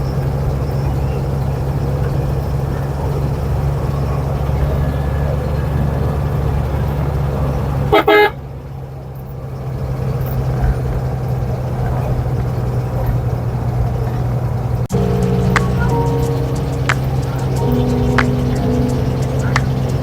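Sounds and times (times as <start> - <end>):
bus engine droning: 0.0 - 20.0
vehicle horn blast: 7.9 - 8.4.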